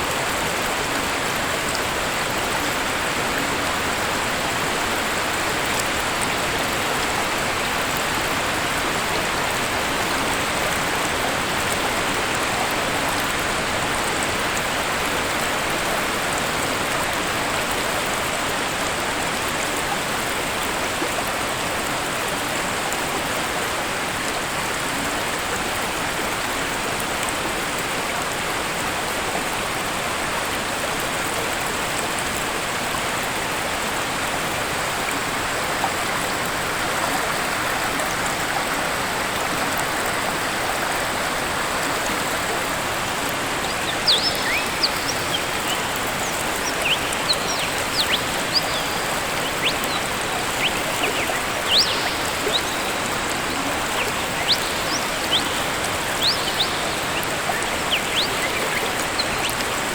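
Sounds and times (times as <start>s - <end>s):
waterfall rushing: 33.3s - 59.9s.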